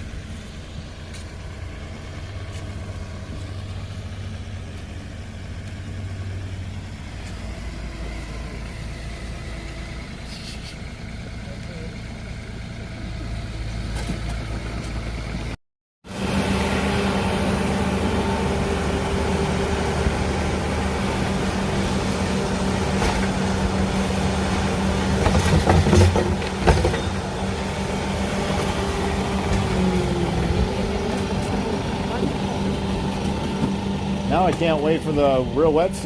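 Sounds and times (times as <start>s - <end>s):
engine idling: 0.0s - 36.0s
sharp knocks and clatters: 25.1s - 27.2s.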